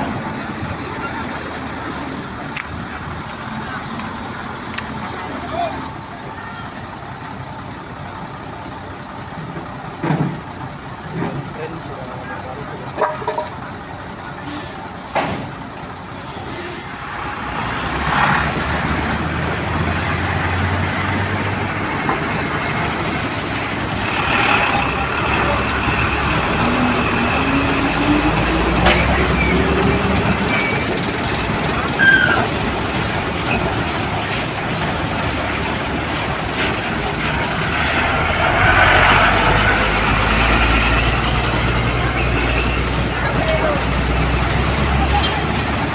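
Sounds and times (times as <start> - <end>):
heavy truck engine running: 0.0 - 45.9
air brakes hissing: 14.4 - 17.2.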